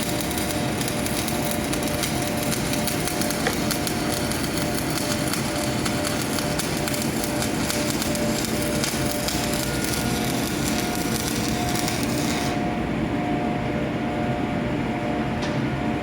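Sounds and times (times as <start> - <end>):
welding arc crackling: 0.0 - 12.7.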